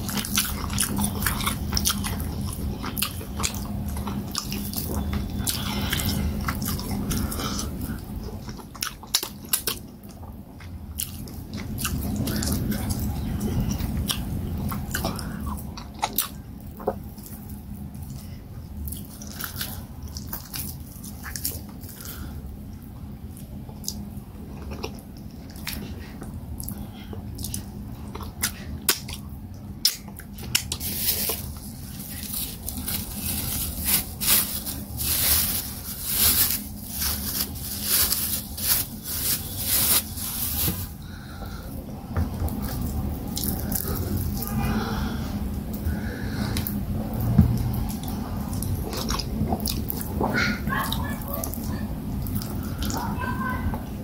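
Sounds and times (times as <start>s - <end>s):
wet chewing and mouth smacks: 23.2s - 32.7s, 46.5s - 53.0s.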